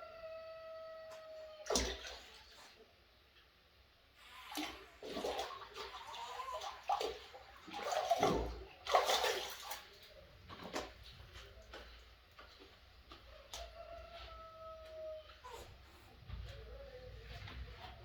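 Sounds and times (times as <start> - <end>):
water running and splashing: 4.5 - 12.8.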